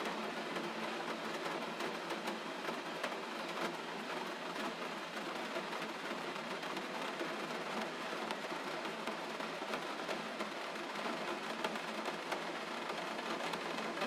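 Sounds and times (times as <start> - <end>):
gentle rain: 0.0 - 14.0.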